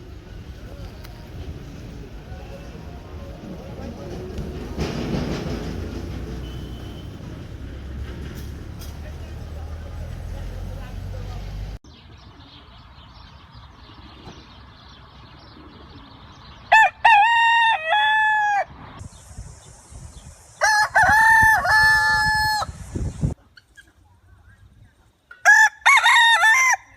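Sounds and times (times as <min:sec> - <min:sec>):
rooster crowing: 0:16.7 - 0:18.7, 0:20.6 - 0:22.7, 0:25.4 - 0:26.9.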